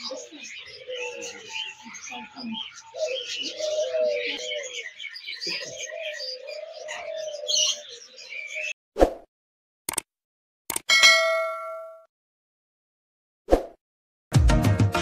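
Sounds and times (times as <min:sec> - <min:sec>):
caged birds chirping: 0:00.0 - 0:08.8.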